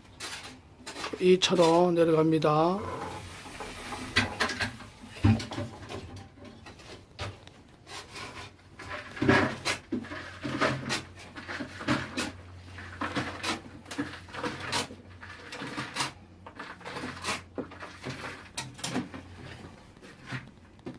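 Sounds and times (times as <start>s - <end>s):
digging knocks and scrapes: 2.7s - 7.0s, 7.9s - 20.9s.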